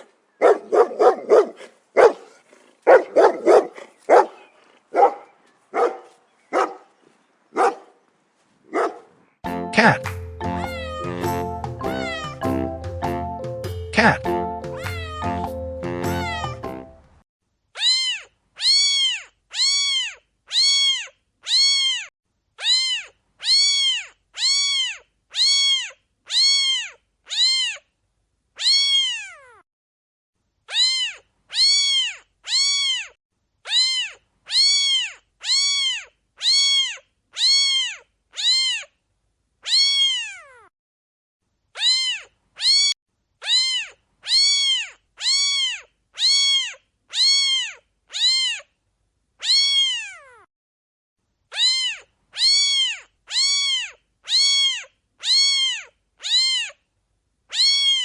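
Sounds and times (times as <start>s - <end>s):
background music: 9.4s - 17.2s
cat meowing: 10.6s - 11.3s, 11.9s - 12.4s, 14.8s - 15.4s, 16.1s - 16.6s, 17.8s - 27.8s, 28.6s - 29.6s, 30.7s - 38.9s, 39.6s - 40.7s, 41.8s - 48.7s, 49.4s - 50.5s, 51.5s - 56.8s, 57.5s - 58.0s.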